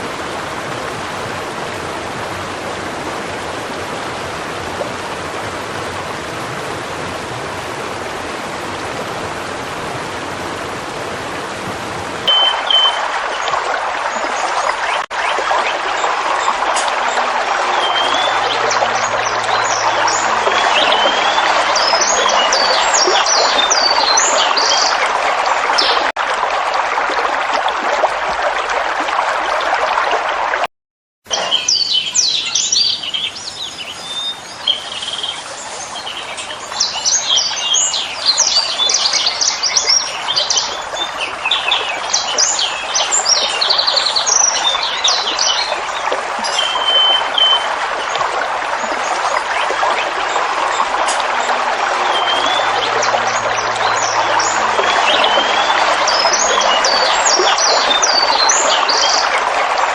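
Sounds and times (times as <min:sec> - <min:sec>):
waterfall rushing: 0:00.0 - 0:30.6, 0:31.3 - 0:59.9
birds chirping: 0:12.2 - 0:26.1, 0:31.3 - 0:48.2, 0:48.8 - 0:59.4.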